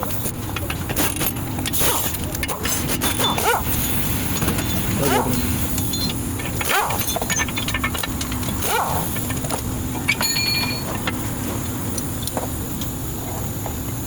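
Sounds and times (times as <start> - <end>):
metal tool clinking: 0.1 - 11.3.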